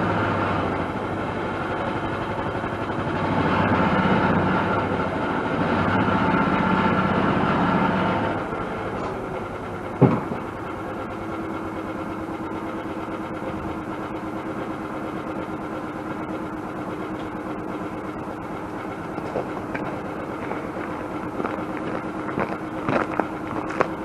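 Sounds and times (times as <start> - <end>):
vehicle engine idling: 0.0 - 24.0
sharp knock: 10.0 - 10.4.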